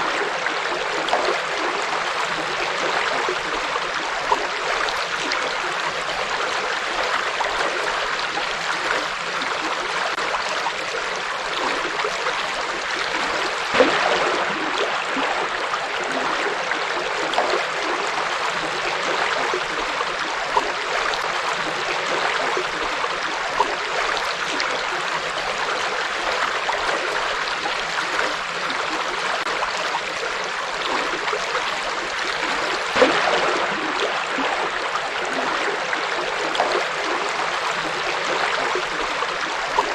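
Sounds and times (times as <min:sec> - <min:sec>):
water splashes: 0:00.0 - 0:39.9
river water rushing: 0:28.8 - 0:39.9.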